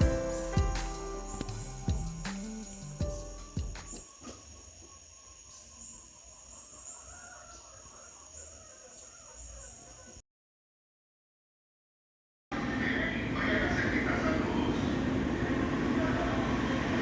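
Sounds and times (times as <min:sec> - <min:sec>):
insects trilling: 0:00.0 - 0:10.2.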